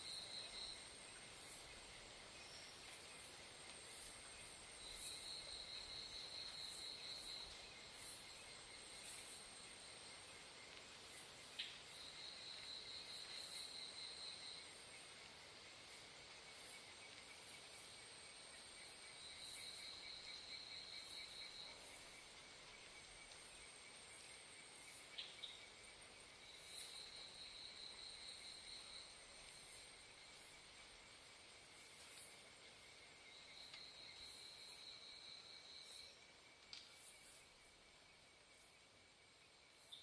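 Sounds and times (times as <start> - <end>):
steady pulsed insect trill: 0.0 - 40.0
faint clicks: 36.5 - 37.2.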